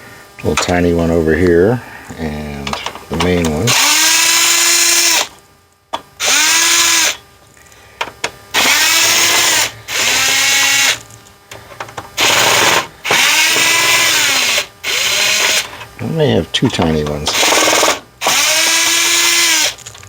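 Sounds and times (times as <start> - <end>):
power screwdriver motor whine: 3.7 - 5.3, 6.2 - 7.2, 8.6 - 11.0, 12.2 - 15.7, 17.3 - 19.9.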